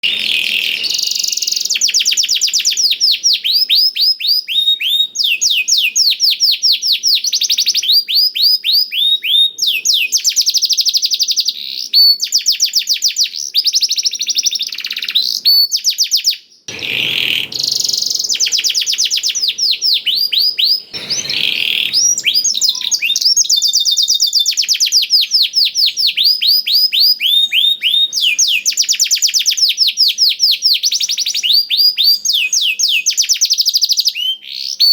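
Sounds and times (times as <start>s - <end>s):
canary singing: 0.0s - 34.9s.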